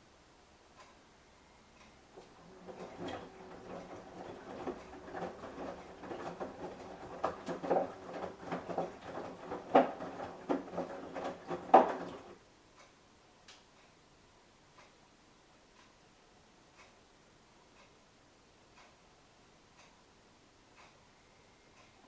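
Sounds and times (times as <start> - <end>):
washing machine motor hum: 2.0 - 12.4
laundry load tumbling knocks: 2.2 - 12.4.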